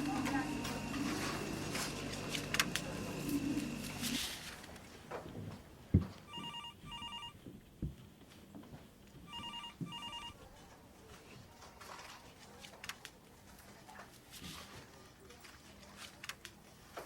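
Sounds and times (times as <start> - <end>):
telephone double ring: 6.3 - 7.4, 9.3 - 10.4.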